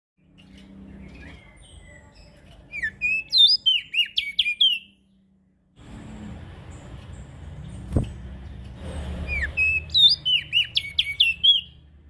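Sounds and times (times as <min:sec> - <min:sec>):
bird twittering and whistling: 0:00.4 - 0:05.0, 0:09.2 - 0:11.8.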